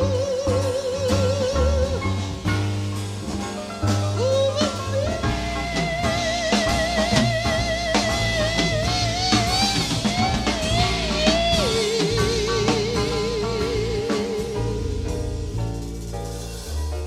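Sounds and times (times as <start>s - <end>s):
woman singing jazz with vibrato: 0.0s - 2.2s, 4.2s - 15.2s
bass: 0.0s - 17.0s
drum kit: 0.0s - 17.0s
piano: 0.0s - 17.0s.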